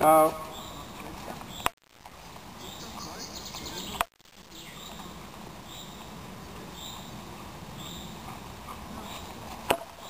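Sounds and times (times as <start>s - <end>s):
outdoor background noise: 0.0s - 10.0s
bird chirping: 0.4s - 1.7s, 2.6s - 6.1s, 6.7s - 7.2s, 7.8s - 8.3s.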